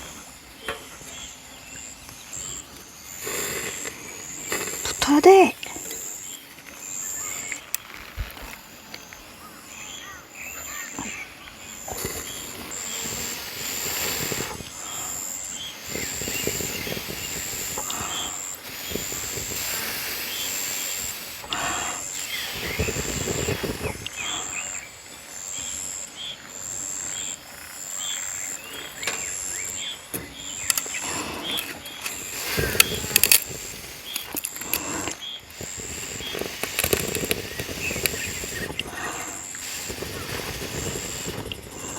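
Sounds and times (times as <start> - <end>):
insects chirping: 0.0 - 41.9
breathy rushes of noise: 11.8 - 24.9, 30.8 - 41.9.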